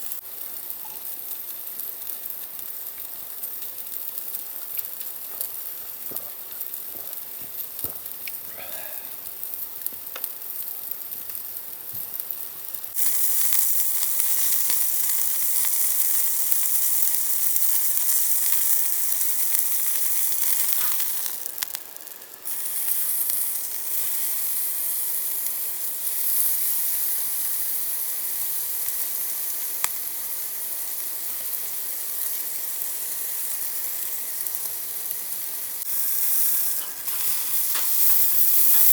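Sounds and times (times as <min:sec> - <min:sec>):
food sizzling as it fries: 0:00.0 - 0:38.9
small clicks: 0:09.8 - 0:10.4.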